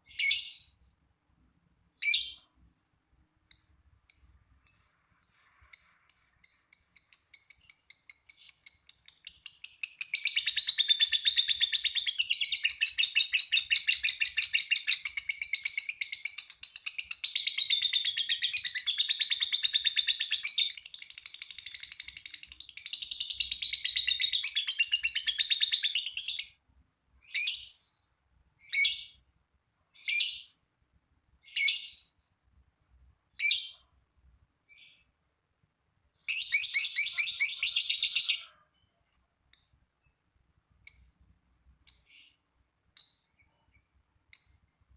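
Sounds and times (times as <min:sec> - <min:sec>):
lovebird sharp chirps: 0:00.0 - 0:00.8, 0:02.0 - 0:26.6, 0:27.2 - 0:29.2, 0:30.0 - 0:30.6, 0:31.4 - 0:32.1, 0:33.4 - 0:33.8, 0:34.7 - 0:35.1, 0:36.2 - 0:38.5, 0:40.8 - 0:41.2, 0:41.8 - 0:42.4, 0:43.0 - 0:44.6
lovebird chattering song: 0:03.5 - 0:26.6, 0:36.3 - 0:38.5, 0:43.0 - 0:43.4.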